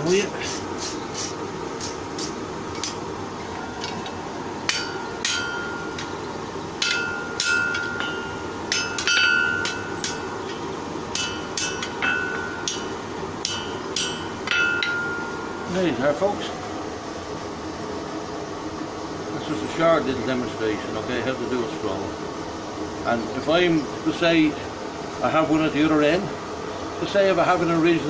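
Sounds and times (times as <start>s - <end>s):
hammer striking hot iron: 1.9s - 6.2s, 6.8s - 15.8s
anvil ringing: 4.7s - 6.2s, 6.8s - 15.9s.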